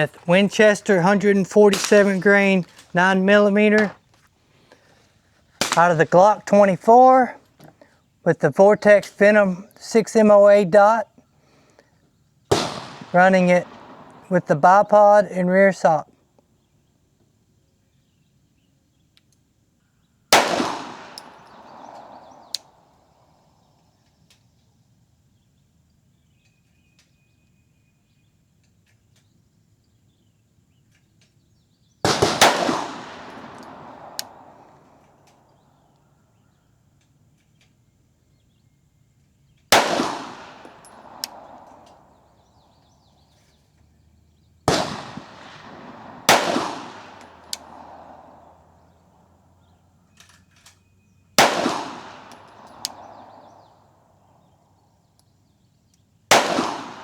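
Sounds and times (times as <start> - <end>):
pistol shots with echo: 0.0 - 4.0, 5.6 - 7.3, 12.5 - 15.2, 20.3 - 23.6, 32.0 - 35.8, 39.7 - 43.2, 44.7 - 49.3, 51.4 - 54.5, 56.3 - 57.0.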